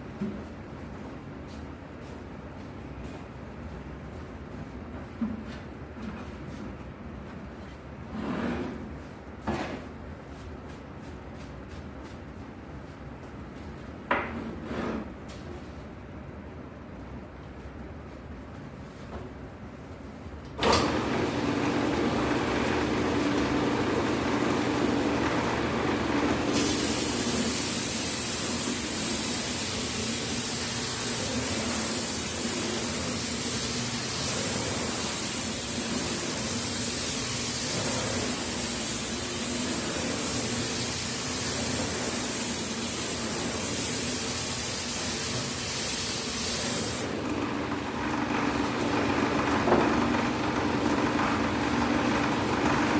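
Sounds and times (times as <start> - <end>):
sanding machine humming and hissing: 20.8 - 37.6.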